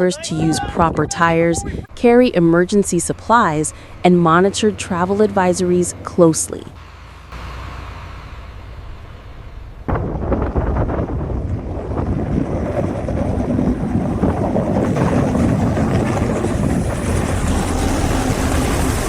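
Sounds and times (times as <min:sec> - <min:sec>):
blizzard wind buffeting microphone: 0:00.0 - 0:06.8, 0:08.4 - 0:19.0.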